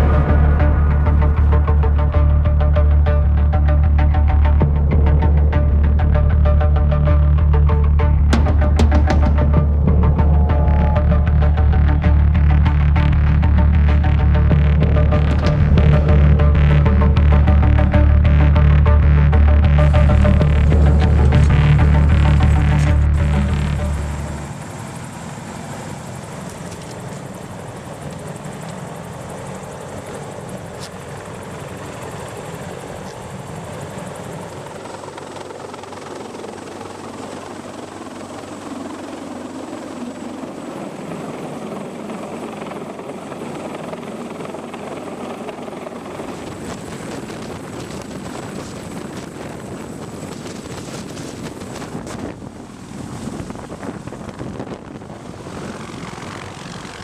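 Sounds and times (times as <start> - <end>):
thin high whine: 0.0 - 36.6
aircraft engines running: 0.0 - 57.0.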